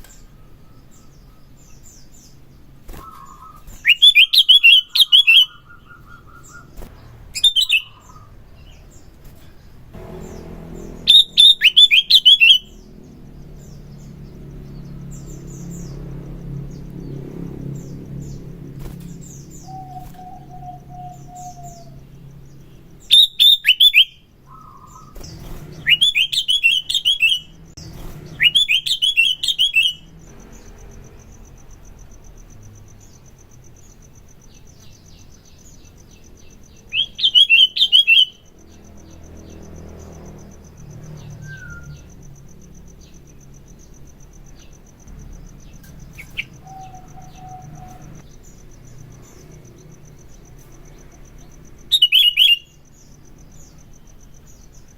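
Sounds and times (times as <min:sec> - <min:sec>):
bulbul chattering song: 0:00.0 - 0:54.9
soft whistled bird calls: 0:02.9 - 0:09.7, 0:19.2 - 0:22.1, 0:23.0 - 0:30.1, 0:36.9 - 0:38.5, 0:41.2 - 0:42.1, 0:46.1 - 0:48.2, 0:51.9 - 0:52.8.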